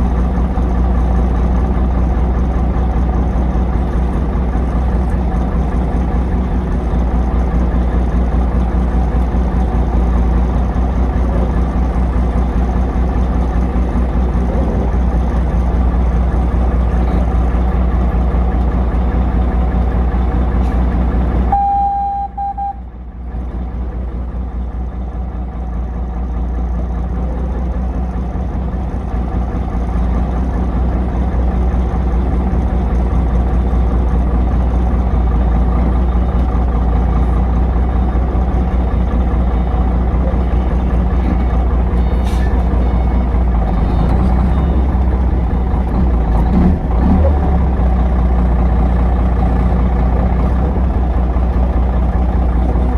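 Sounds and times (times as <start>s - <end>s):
truck engine humming: 0.0s - 52.9s
short beep: 21.5s - 22.9s.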